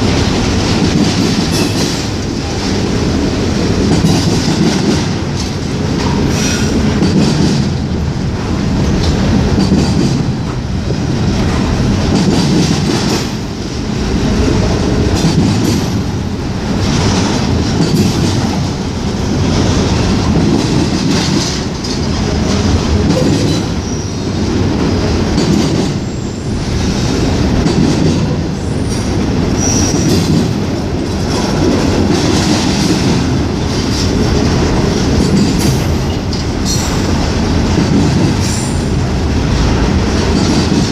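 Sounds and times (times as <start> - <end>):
freight train rumbling past: 0.0 - 40.9
wheels clicking over rail joints: 15.1 - 23.8
high wheel squeals: 29.6 - 30.1.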